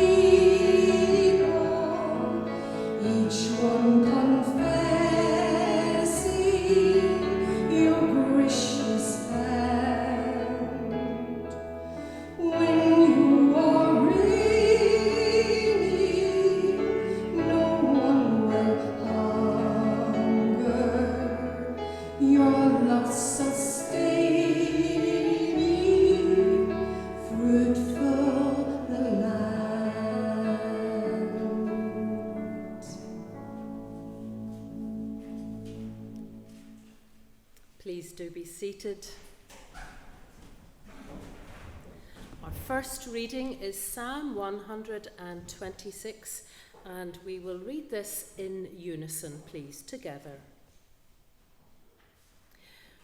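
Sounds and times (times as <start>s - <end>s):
voices singing a hymn: 0.0s - 11.6s, 12.4s - 33.2s
instrumental accompaniment: 0.0s - 37.8s.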